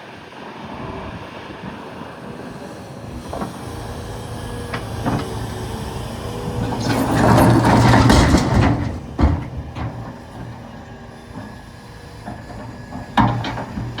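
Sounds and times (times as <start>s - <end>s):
excavator diesel engine: 0.1s - 14.0s.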